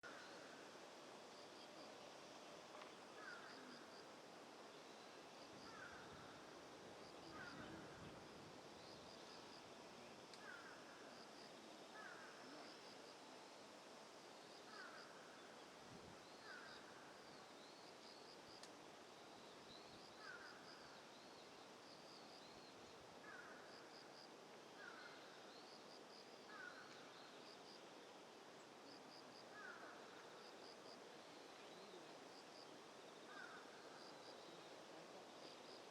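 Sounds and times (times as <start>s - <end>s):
steady hiss: 0.0s - 35.9s.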